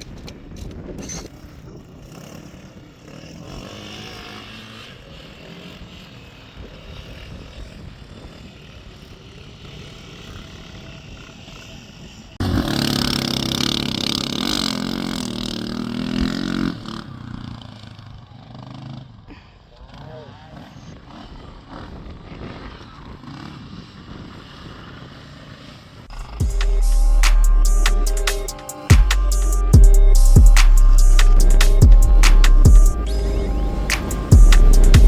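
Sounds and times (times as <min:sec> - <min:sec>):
off-road motorcycle engines: 0:00.0 - 0:35.0
loud motorcycle engine wavering pitch: 0:02.0 - 0:19.3, 0:26.0 - 0:35.0.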